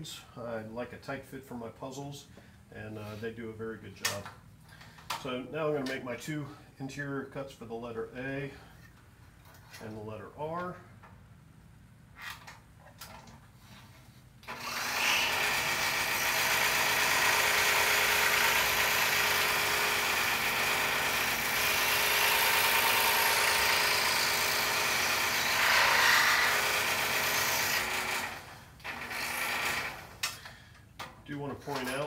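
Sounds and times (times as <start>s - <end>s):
scroll saw cutting wood: 14.4s - 30.2s.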